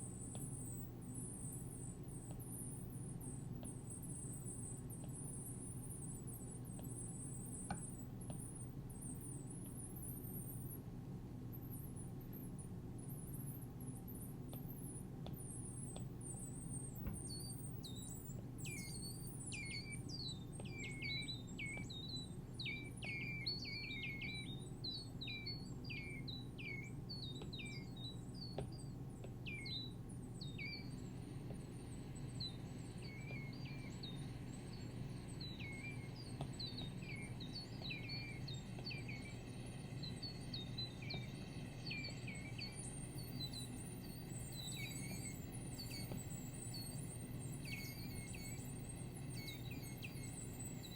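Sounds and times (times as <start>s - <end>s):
steady low hum: 0.0s - 50.9s
synthesized bird-like chirps: 32.1s - 50.9s.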